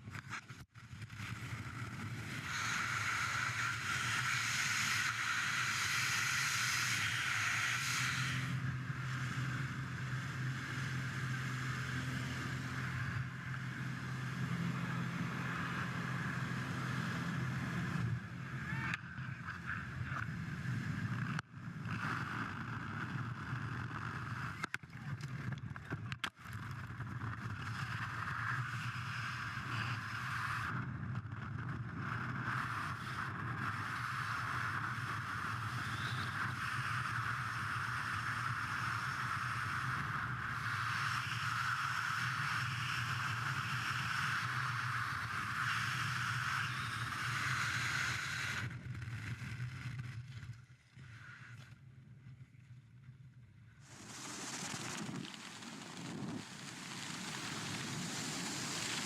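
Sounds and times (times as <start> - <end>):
propeller aircraft engine droning: 0.8 - 25.4, 53.8 - 59.0
wind rush: 53.8 - 59.0.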